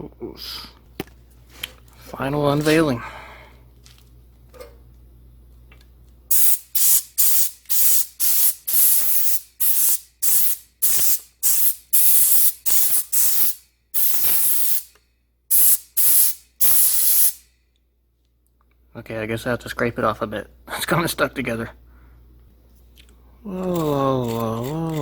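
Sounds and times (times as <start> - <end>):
compressed air blasts: 6.3 - 14.9, 15.5 - 17.5.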